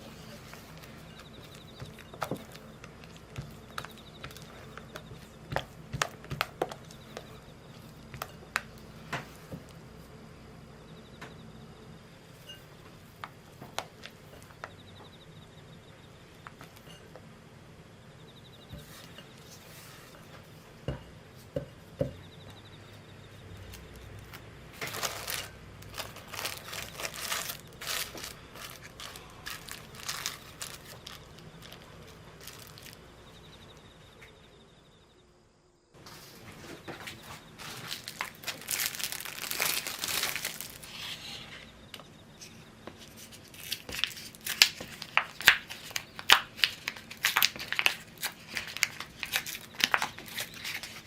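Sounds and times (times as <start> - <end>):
crackling rustling strokes: 0.0 - 9.5, 23.7 - 33.1, 36.0 - 41.6, 42.9 - 51.0.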